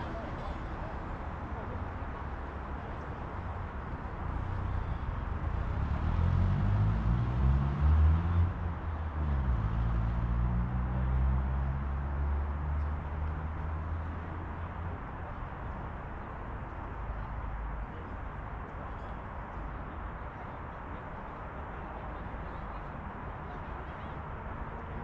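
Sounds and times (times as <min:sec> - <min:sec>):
vehicle engine passing: 0:05.6 - 0:08.7.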